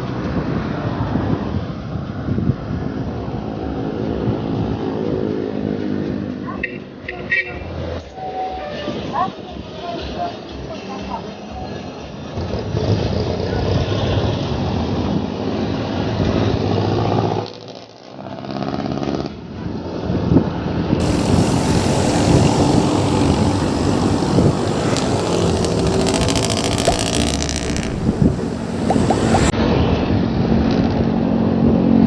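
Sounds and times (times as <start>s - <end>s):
engines of passing vehicles: 21.0s - 29.5s
tyre and wind noise: 21.0s - 29.5s.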